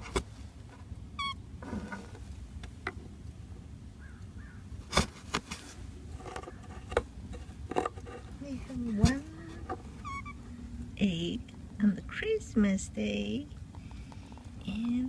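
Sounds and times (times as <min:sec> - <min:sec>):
bird harsh call: 0:04.0 - 0:04.6.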